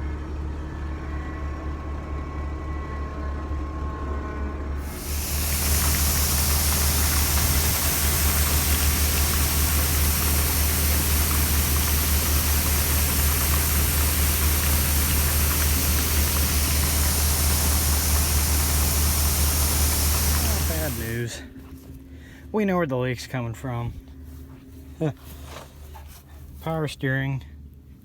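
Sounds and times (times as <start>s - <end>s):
engine idling: 4.8s - 21.4s
loud even hiss: 4.8s - 21.4s.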